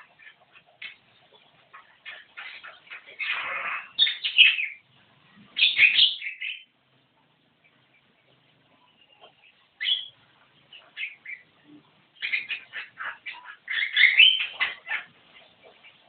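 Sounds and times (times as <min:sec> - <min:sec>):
myna harsh chattering calls: 0:01.7 - 0:04.8, 0:12.2 - 0:16.0.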